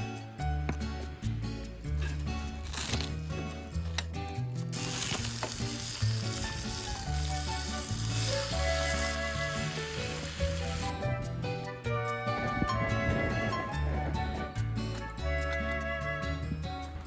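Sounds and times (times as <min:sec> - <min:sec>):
background music: 0:00.0 - 0:17.0
food sizzling in a pan: 0:04.7 - 0:11.0.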